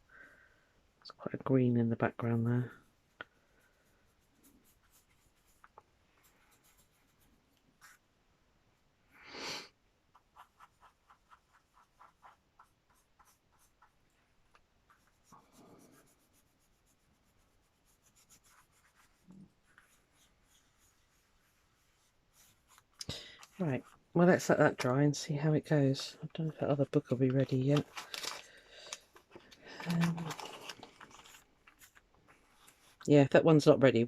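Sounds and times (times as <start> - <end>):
paintbrush strokes: 1.9 - 8.2, 10.0 - 24.7, 31.1 - 33.1
brush scrape: 2.2 - 8.1, 10.1 - 24.7.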